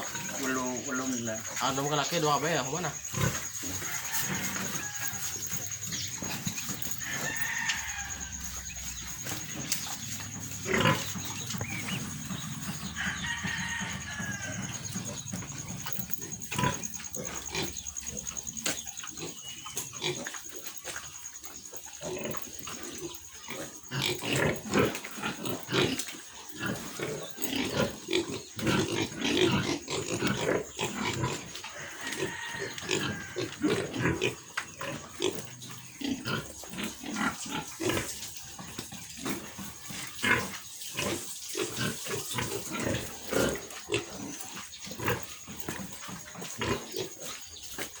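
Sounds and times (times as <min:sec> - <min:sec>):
piglets grunting and squealing: 0:00.0 - 0:21.2, 0:21.8 - 0:48.0.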